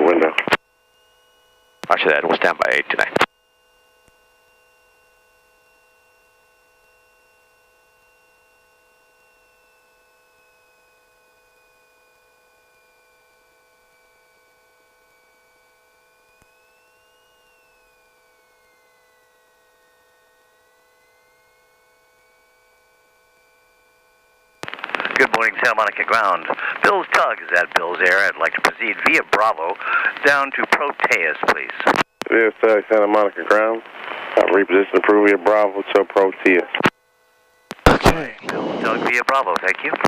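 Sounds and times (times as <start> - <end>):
faint electrical hum and whine: 0.0 - 40.0
thin constant tones: 18.4 - 40.0.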